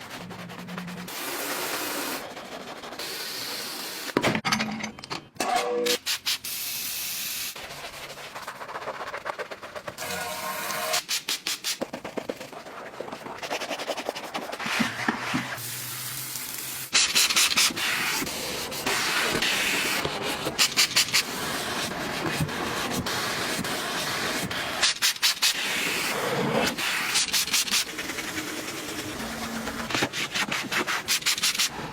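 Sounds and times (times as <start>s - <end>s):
brushes scrubbing: 7.6s - 10.6s, 26.7s - 31.7s.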